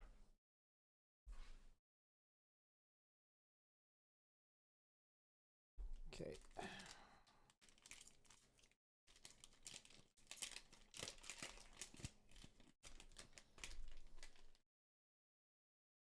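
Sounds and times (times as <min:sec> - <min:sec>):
wrapper crinkling and tearing: 0:06.2 - 0:14.6.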